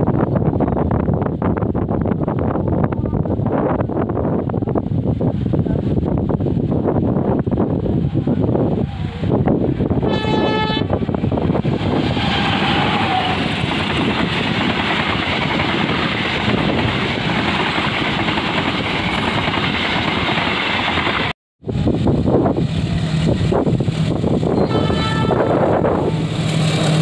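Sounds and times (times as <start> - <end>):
diesel locomotive rumbling: 0.0 - 27.0
train horn blast: 10.0 - 11.0, 24.4 - 26.4
train wheels clattering on rail: 11.3 - 21.3.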